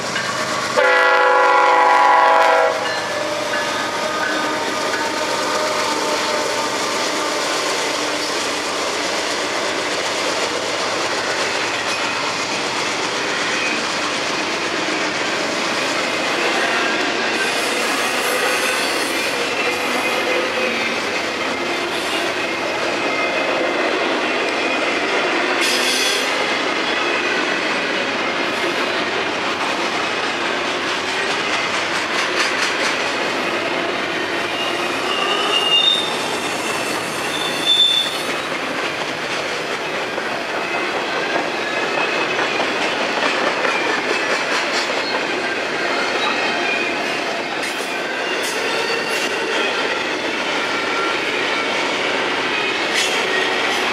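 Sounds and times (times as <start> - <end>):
train cars rolling past: 0.0 - 53.9
high-pitched wheel squeals: 34.5 - 38.4.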